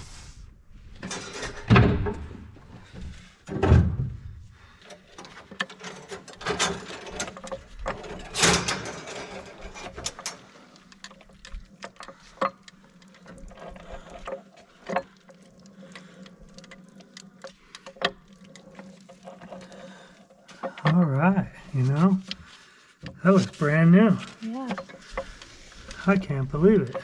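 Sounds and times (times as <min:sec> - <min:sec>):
metallic clicks and knocks: 0:04.8 - 0:19.7.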